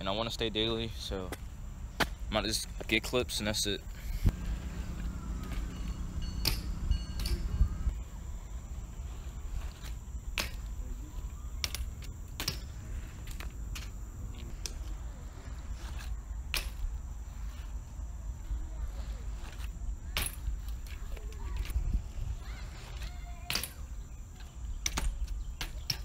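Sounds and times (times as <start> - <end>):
wind buffeting microphone: 3.9 - 7.9, 20.9 - 22.9.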